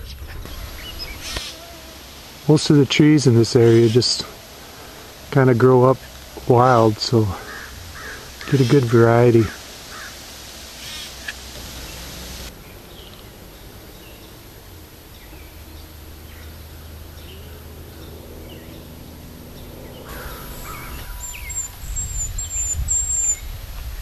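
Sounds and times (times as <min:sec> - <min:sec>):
low rumbling noise: 0:00.0 - 0:24.0
birds chirping and calling: 0:00.4 - 0:01.7, 0:03.5 - 0:10.2, 0:10.8 - 0:23.5
high-pitched bird chirps: 0:20.1 - 0:23.4.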